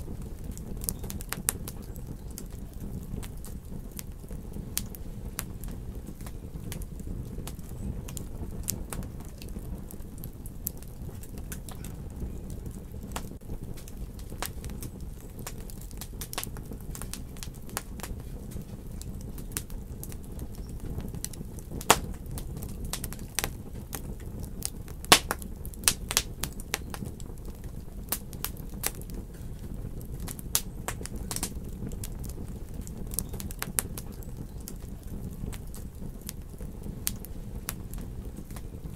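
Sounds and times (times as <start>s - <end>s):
fire crackles and pops: 0.0s - 38.9s
fire rumbling in fireplace: 0.0s - 38.9s.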